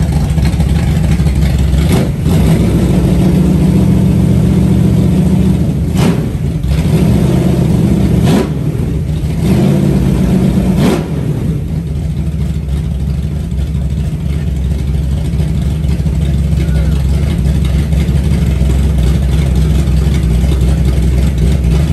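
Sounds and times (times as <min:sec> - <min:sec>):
engine revving: 0:00.0 - 0:12.2, 0:16.0 - 0:21.9.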